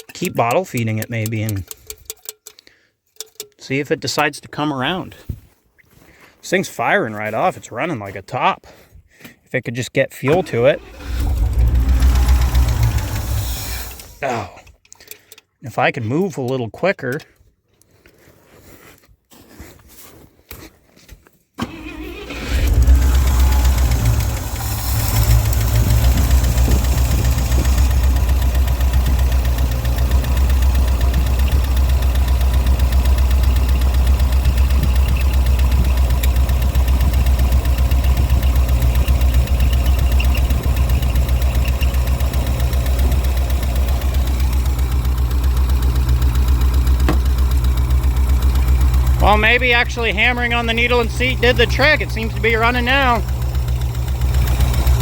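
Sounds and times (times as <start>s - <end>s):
truck engine starting and idling: 10.2s - 14.5s, 21.6s - 55.0s.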